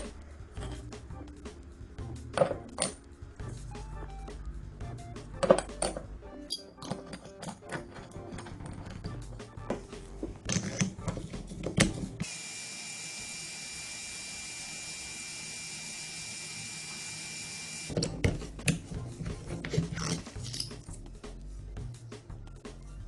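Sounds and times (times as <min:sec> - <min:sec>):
small power tool whining: 0:12.2 - 0:18.0.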